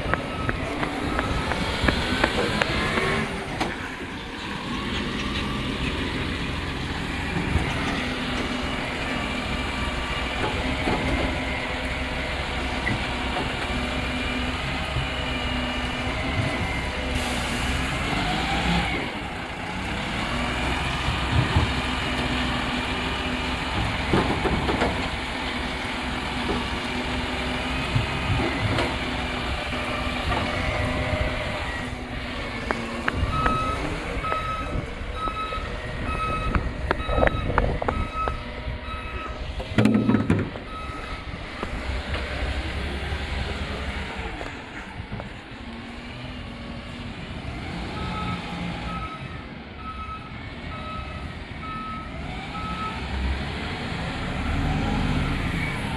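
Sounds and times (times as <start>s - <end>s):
reversing beeper: 0.0s - 3.4s, 29.9s - 41.9s, 47.9s - 53.1s
diesel truck engine running: 0.0s - 55.9s.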